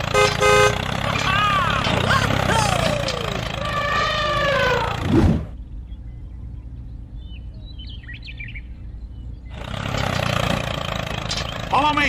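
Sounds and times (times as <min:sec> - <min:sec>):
low steady hum: 0:01.9 - 0:09.5
faint bird chirps: 0:05.6 - 0:09.6.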